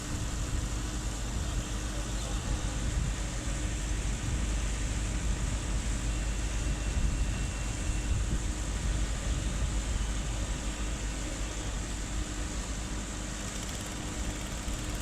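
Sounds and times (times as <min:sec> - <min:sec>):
ship engine running: 0:00.1 - 0:15.0.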